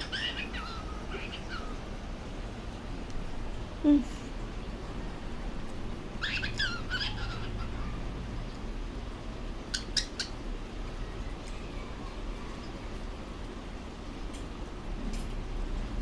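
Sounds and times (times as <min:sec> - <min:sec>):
cockatiel chirping: 0:00.0 - 0:01.8, 0:05.0 - 0:08.0, 0:09.7 - 0:10.4.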